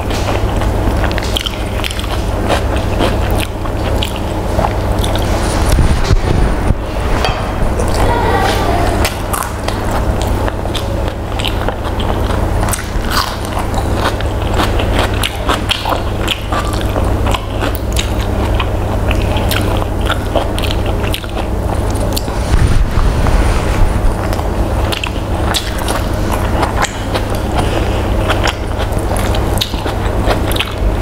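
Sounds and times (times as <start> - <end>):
chewing rice with mouth smacks: 0.0 - 5.8, 7.8 - 22.5, 24.1 - 31.0
steady low hum: 0.0 - 31.0.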